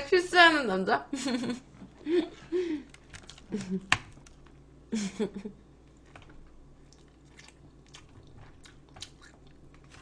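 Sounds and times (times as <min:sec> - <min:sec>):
person chewing food: 0:05.9 - 0:10.0.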